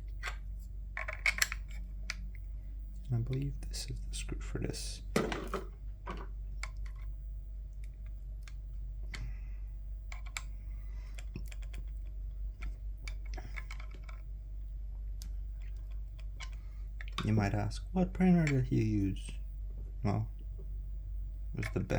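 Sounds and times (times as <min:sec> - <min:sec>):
small plastic parts clicking: 0:00.0 - 0:02.4, 0:05.2 - 0:07.1, 0:10.1 - 0:14.3, 0:15.2 - 0:17.4.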